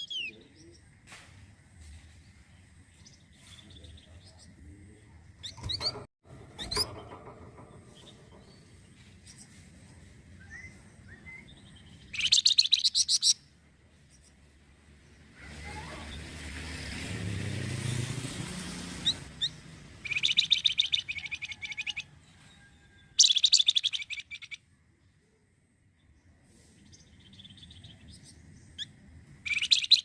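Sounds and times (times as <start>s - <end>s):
songbird singing fast high notes: 19.0s - 22.0s.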